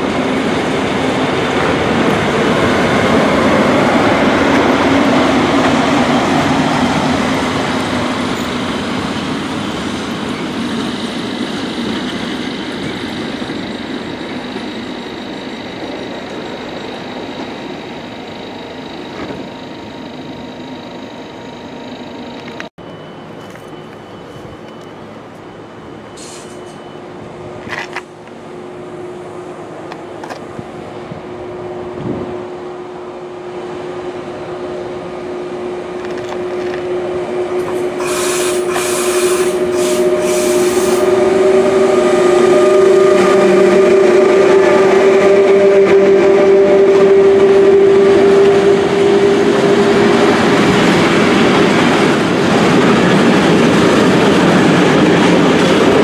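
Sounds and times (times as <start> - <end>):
electric locomotive hum: 0.0 - 56.0.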